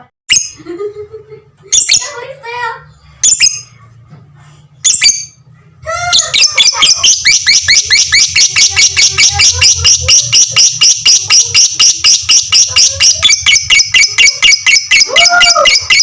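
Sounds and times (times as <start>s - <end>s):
lovebird chattering: 1.7s - 2.2s, 3.2s - 3.7s, 4.8s - 5.4s, 6.0s - 16.0s.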